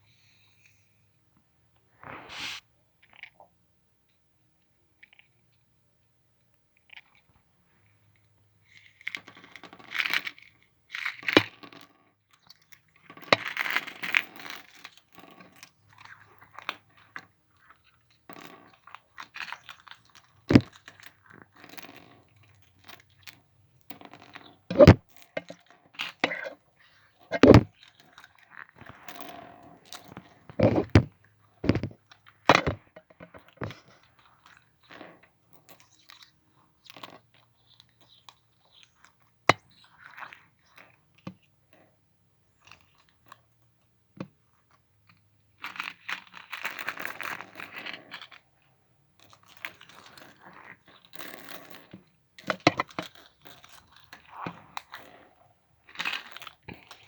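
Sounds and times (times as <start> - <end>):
stones clicking together: 24.7 - 25.0, 27.3 - 27.7, 30.5 - 32.8.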